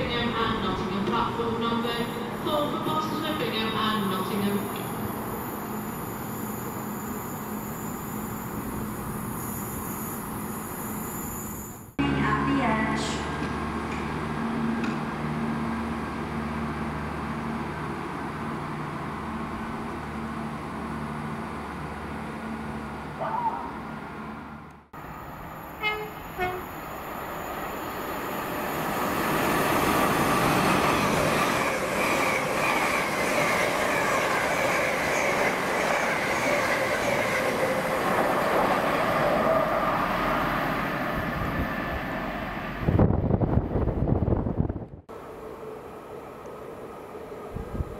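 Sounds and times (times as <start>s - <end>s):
train wheel and rail noise: 0.0s - 47.9s
train horn toots: 25.8s - 26.8s.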